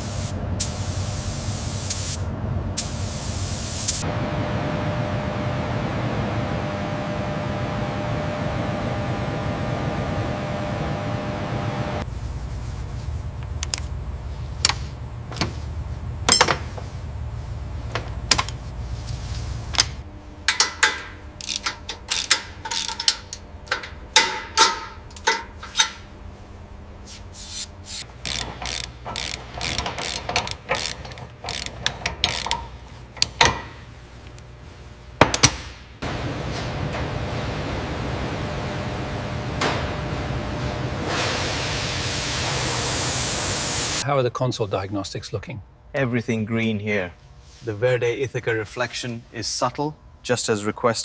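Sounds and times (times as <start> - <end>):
low steady hum: 4.0 - 41.1
hand tools clicking: 20.5 - 26.0, 28.1 - 33.6.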